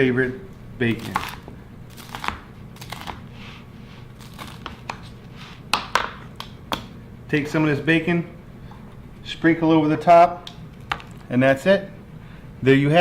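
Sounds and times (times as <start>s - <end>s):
bacon crackling and crinkling: 0.8s - 3.3s, 4.1s - 5.0s.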